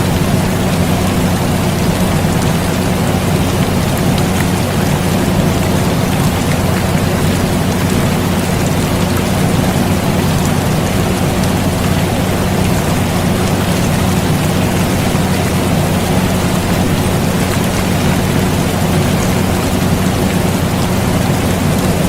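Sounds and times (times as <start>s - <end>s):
air conditioner hum: 0.0s - 22.0s
rain falling: 0.0s - 22.0s
raindrop ticks: 0.0s - 22.0s.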